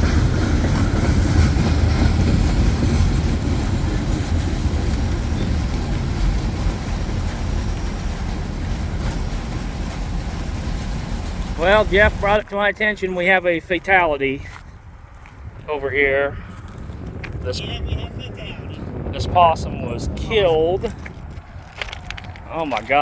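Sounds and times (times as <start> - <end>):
train rumbling past: 0.0 - 15.6.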